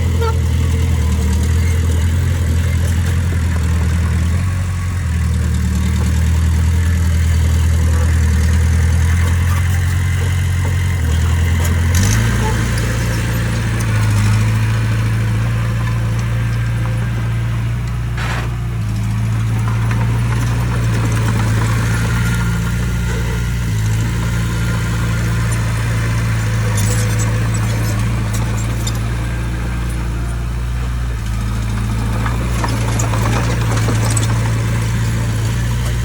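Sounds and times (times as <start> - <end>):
diesel engine of heavy machinery: 0.0 - 36.0.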